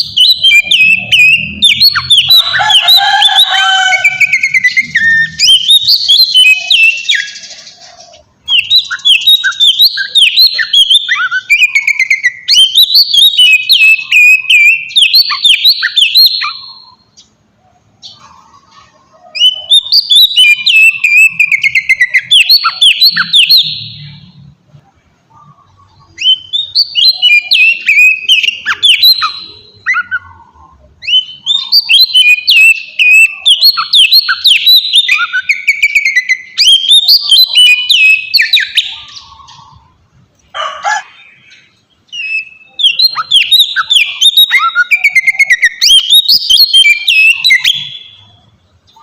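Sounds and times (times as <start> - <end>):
bird singing whistled phrases: 0.0 - 7.7, 8.4 - 17.2, 19.3 - 24.4, 25.4 - 39.9, 41.4 - 49.0.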